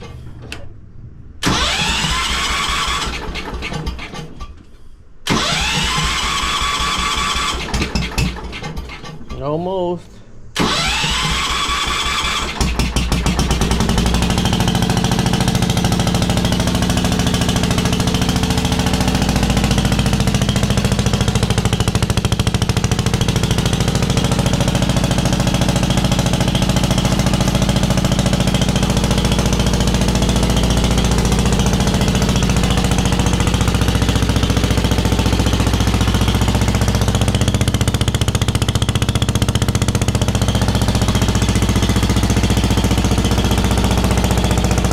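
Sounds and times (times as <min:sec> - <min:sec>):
starter motor whine: 0:01.4 - 0:04.4, 0:05.2 - 0:09.0, 0:10.6 - 0:44.9
engine running loudly: 0:10.6 - 0:44.9.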